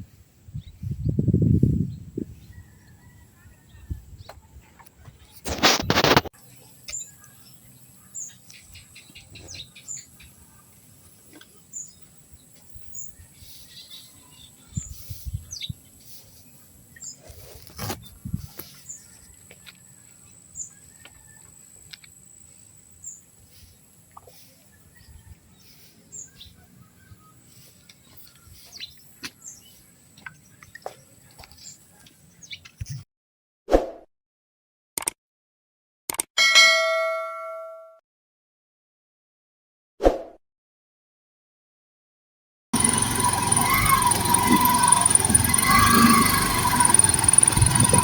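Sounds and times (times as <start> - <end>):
birds chirping: 42.8 - 48.0
faint high whine: 42.8 - 48.0.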